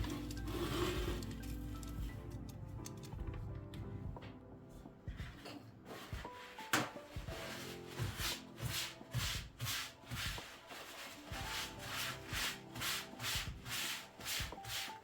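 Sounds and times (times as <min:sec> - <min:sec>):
soft background music: 0:00.0 - 0:15.0
rhythmic rubbing swishes: 0:06.0 - 0:15.0.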